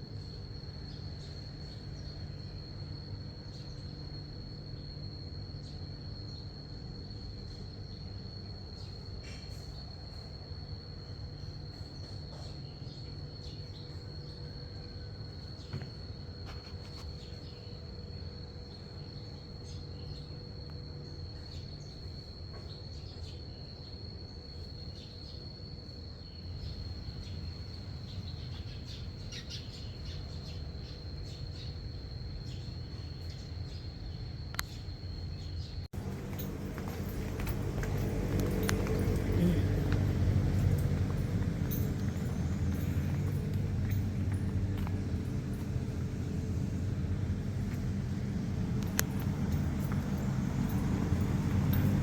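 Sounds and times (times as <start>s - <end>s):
train rumble: 35.9s - 52.0s.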